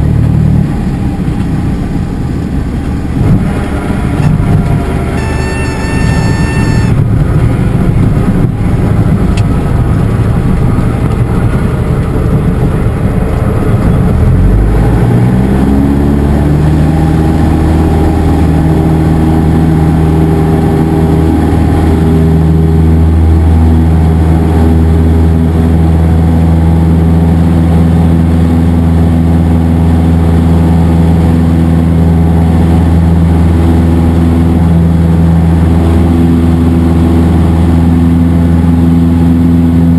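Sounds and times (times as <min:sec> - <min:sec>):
propeller plane engine: 0:00.0 - 0:39.9
stall warning horn: 0:04.1 - 0:07.1.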